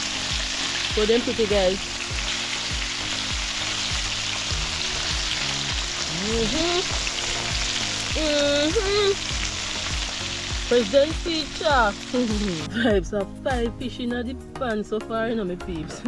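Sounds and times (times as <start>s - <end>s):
fish frying in hot oil: 0.0s - 12.8s
music with a steady beat: 0.0s - 16.0s
person singing or humming: 6.1s - 7.0s, 8.1s - 9.2s.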